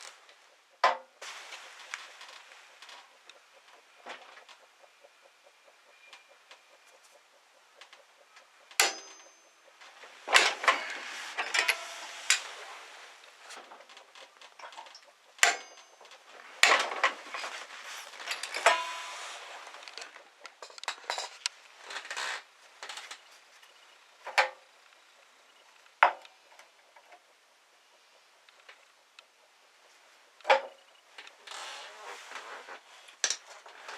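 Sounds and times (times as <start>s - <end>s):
metal tools clinking and knocking: 8.8s - 12.6s, 14.6s - 19.1s, 20.6s - 21.5s.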